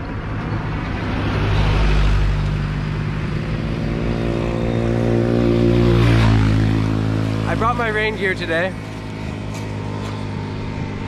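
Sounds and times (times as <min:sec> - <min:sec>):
vehicle passing by: 0:00.0 - 0:11.0
engine running steadily: 0:02.2 - 0:11.0.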